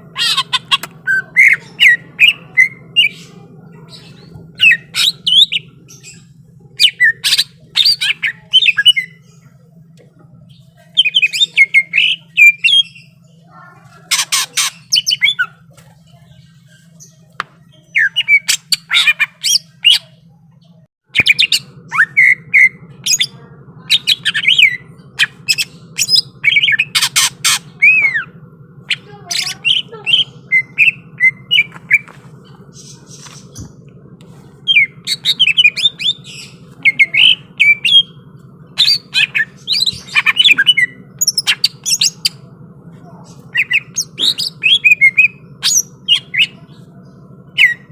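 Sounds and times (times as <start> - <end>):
faint steady hum: 0.0 - 47.9
bird singing sharp chirps: 34.5 - 42.5, 43.3 - 47.9.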